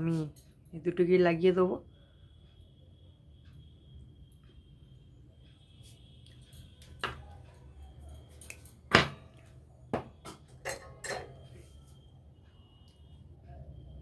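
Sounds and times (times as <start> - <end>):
metal tools clicking and clattering: 10.6 - 11.6.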